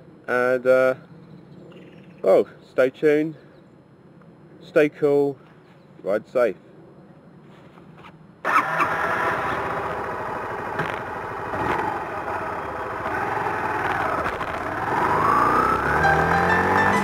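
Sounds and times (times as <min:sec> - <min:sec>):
motorcycle engine revving: 0:08.4 - 0:17.0.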